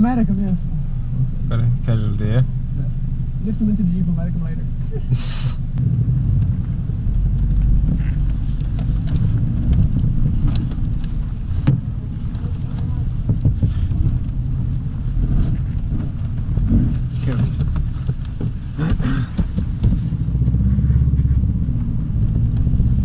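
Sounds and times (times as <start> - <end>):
engine running low rumble: 0.0 - 23.0
vehicle rattling and knocking: 5.8 - 23.0.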